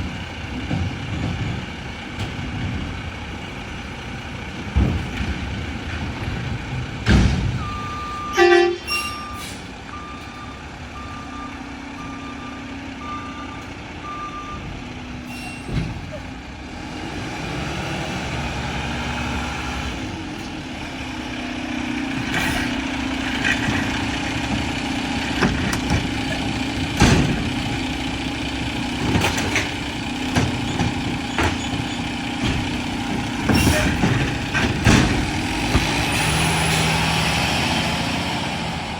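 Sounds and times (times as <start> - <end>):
diesel engine running: 0.0 - 38.9
truck backup alarm beeping: 7.4 - 16.0
sharp metal clanks and bangs: 25.4 - 27.6, 29.0 - 36.4.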